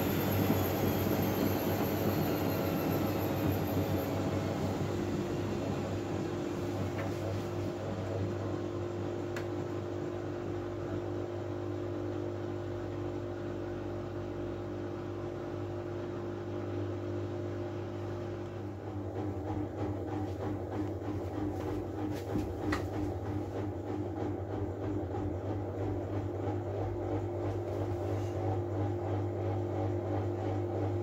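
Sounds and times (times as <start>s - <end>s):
washing machine drum spinning: 0.0s - 11.0s, 18.7s - 31.0s.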